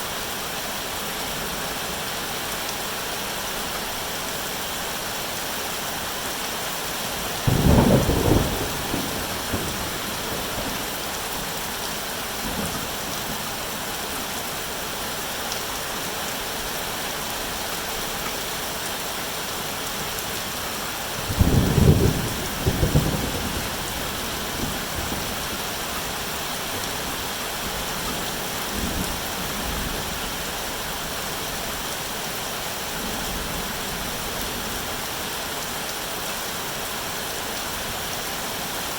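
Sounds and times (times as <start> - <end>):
steady rain falling: 0.0 - 38.9
thunder rolling: 7.4 - 10.8.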